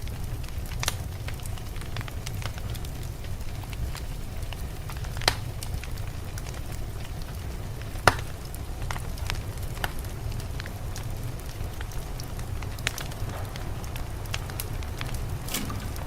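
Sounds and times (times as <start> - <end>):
fire popping: 0.0 - 16.0
wood fire crackling: 0.0 - 16.0
low rumble: 12.4 - 16.0.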